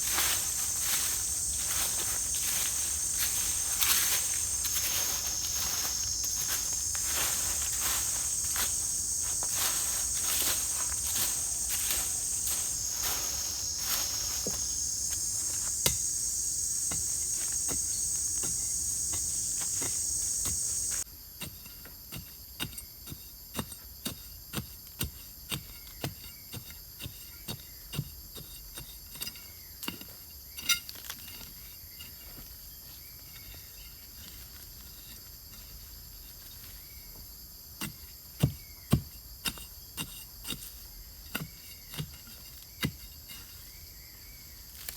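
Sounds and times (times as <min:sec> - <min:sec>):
insects chirping: 0:00.0 - 0:21.0, 0:40.8 - 0:44.9.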